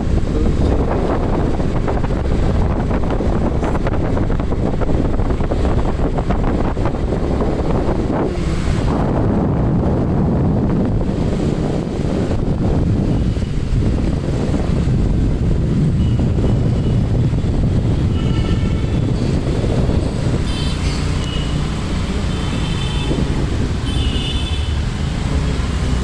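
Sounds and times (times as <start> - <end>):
road traffic rumbling: 0.0 - 26.0
wind buffeting microphone: 0.0 - 26.0
vehicle horns honking: 16.0 - 17.0, 18.0 - 19.4, 20.3 - 21.7, 22.3 - 24.8.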